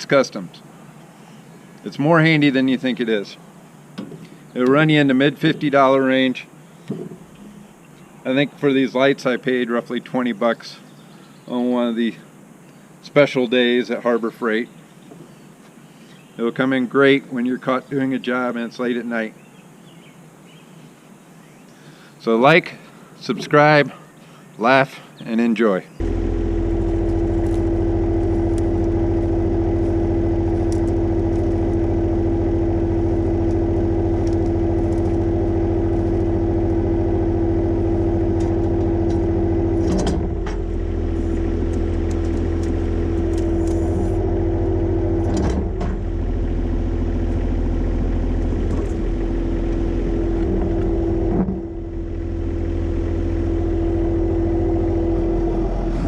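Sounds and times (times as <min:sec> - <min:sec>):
constant hum: 0:25.9 - 0:56.0
tractor diesel engine running: 0:26.0 - 0:56.0.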